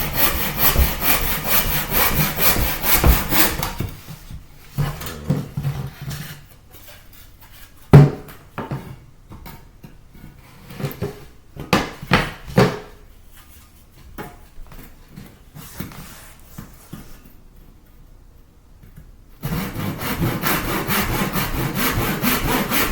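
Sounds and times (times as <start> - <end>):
boards and tools knocking: 0.0 - 6.3, 10.8 - 13.0.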